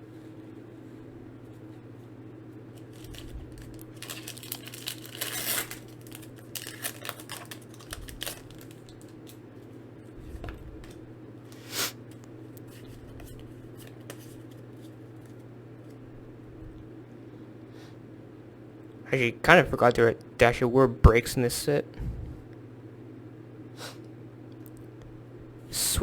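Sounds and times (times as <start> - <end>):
foil wrapper tearing and crinkling: 2.7 - 9.4.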